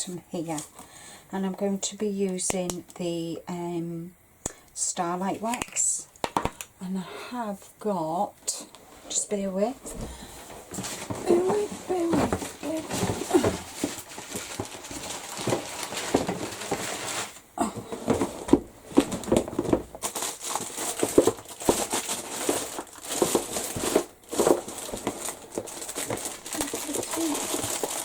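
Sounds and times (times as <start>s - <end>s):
packaging rustling: 9.8s - 28.0s.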